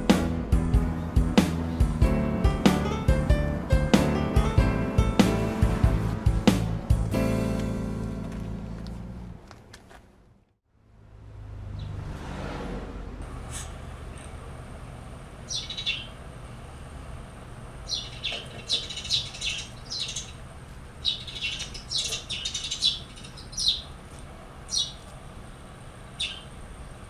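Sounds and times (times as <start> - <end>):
steady low hum: 0.0 - 9.5, 13.2 - 27.0
small bird chirping: 15.5 - 16.2, 17.8 - 20.4, 21.0 - 24.0, 24.7 - 25.1, 26.2 - 26.6.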